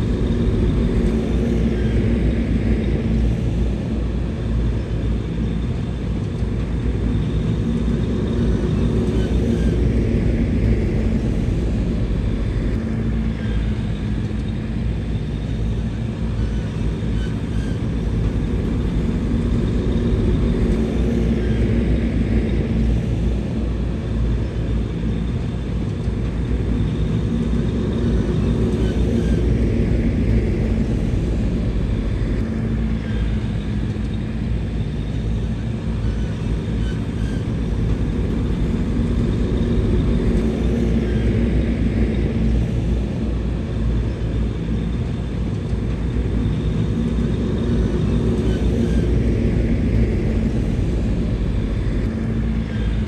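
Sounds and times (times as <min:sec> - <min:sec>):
bulldozer diesel engine running: 0:34.8 - 0:53.0.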